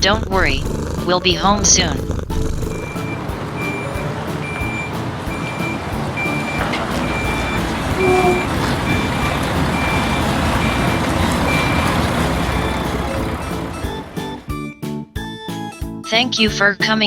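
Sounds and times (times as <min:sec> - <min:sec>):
engine rumble: 0:00.0 - 0:14.7
reversing alarm beeping: 0:02.7 - 0:14.6.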